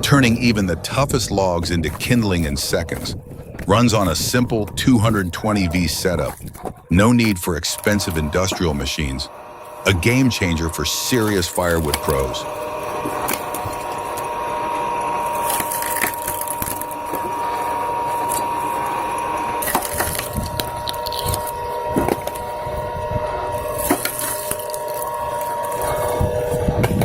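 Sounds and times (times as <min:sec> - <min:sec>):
machine whine: 0:00.0 - 0:27.0
wood cracking apart: 0:11.5 - 0:22.8, 0:23.5 - 0:27.0.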